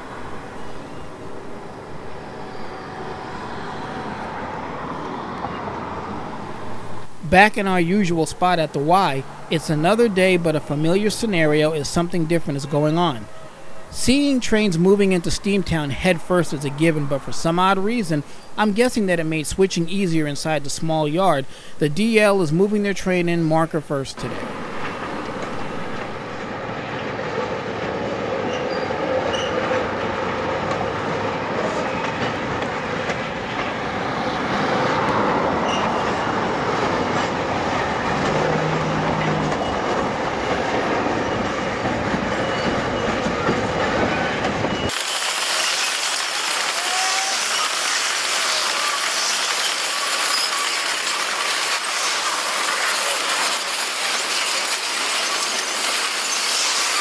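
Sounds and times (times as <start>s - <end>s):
freight train rolling: 0.0s - 57.0s
wheels squealing on track: 1.9s - 6.3s, 28.2s - 30.0s, 34.6s - 37.3s, 38.1s - 57.0s
wheels clacking over rail joints: 24.2s - 57.0s.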